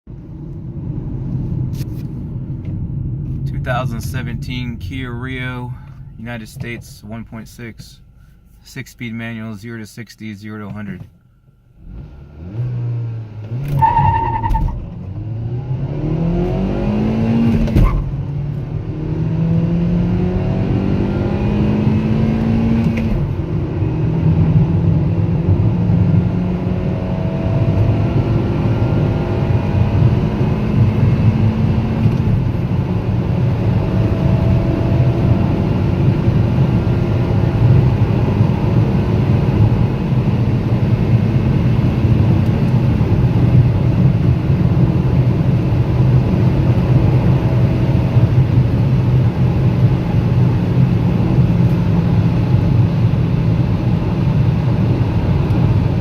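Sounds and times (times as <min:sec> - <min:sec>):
car engine accelerating hard: 0:11.8 - 0:56.0.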